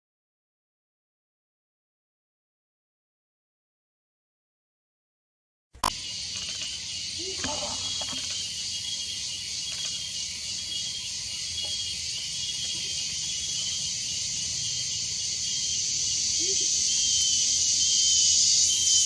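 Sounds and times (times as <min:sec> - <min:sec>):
high insect chorus: 0:05.8 - 0:19.0
bird soft double hoot: 0:05.9 - 0:14.6.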